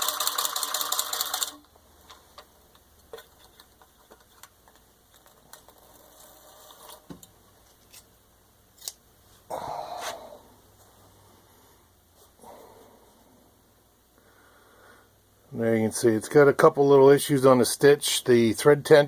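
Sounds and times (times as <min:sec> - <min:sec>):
hand-crank sewing machine clatter: 0:00.0 - 0:01.6.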